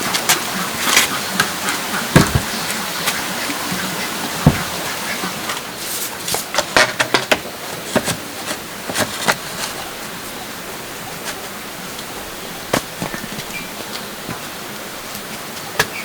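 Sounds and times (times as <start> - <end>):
sharp knocks and clicks: 4.4 - 4.8.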